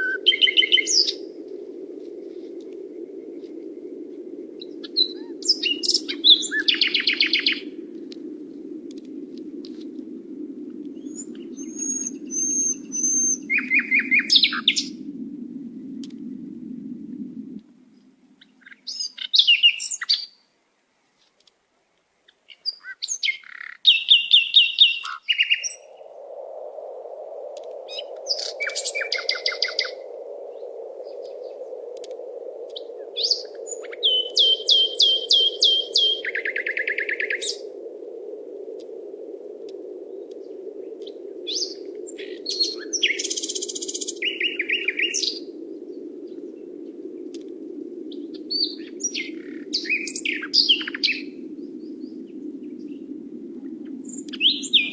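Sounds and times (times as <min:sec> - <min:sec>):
songbirds chirping and trilling: 0:00.0 - 0:01.5, 0:04.4 - 0:07.9, 0:10.8 - 0:15.1, 0:17.9 - 0:26.0, 0:27.6 - 0:37.7, 0:40.0 - 0:54.9.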